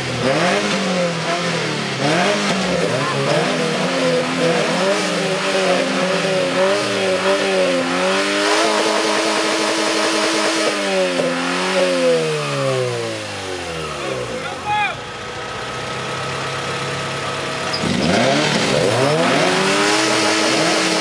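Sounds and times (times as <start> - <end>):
car engines revving hard: 0.0 - 21.0.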